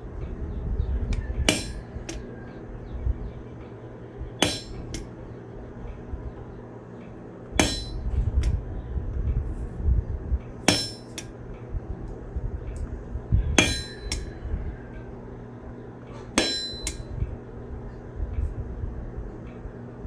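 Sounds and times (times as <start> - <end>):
low hum: 0.0 - 20.0
hammer ringing on steel: 1.5 - 2.2, 4.4 - 5.1, 7.6 - 8.2, 10.7 - 11.3, 13.6 - 14.4, 16.4 - 17.2.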